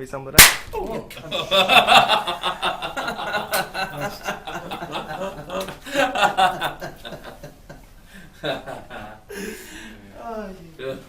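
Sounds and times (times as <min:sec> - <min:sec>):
sharp click: 0:00.4 - 0:00.8
men laughing: 0:00.8 - 0:10.2.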